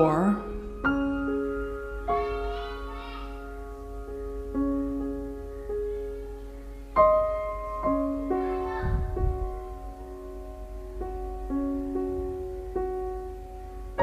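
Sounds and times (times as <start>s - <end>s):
soft slow piano music: 0.0s - 14.0s.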